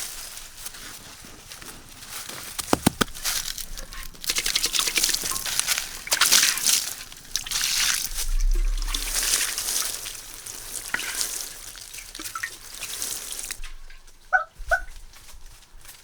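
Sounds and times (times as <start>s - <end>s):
sharp knocks: 2.6s - 3.3s
water splashing and sloshing: 4.2s - 13.6s.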